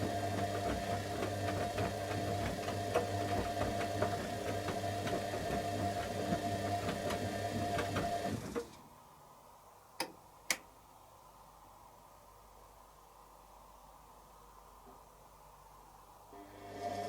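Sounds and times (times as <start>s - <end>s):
washing machine drum motor running: 0.0s - 8.7s
washing machine clicks: 10.0s - 10.7s.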